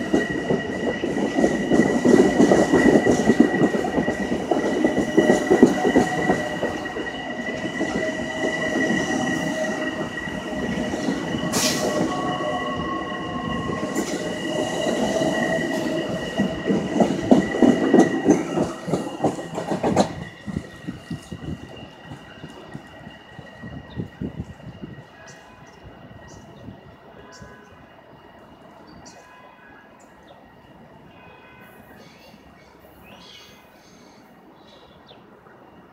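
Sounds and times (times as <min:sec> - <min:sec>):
train wheels clattering on rails: 0:00.0 - 0:26.6.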